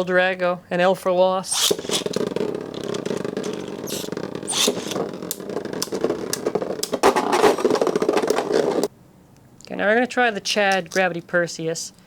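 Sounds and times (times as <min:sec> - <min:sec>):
hard plastic rasping: 0:01.5 - 0:08.9
rapid irregular clicks: 0:01.5 - 0:08.9.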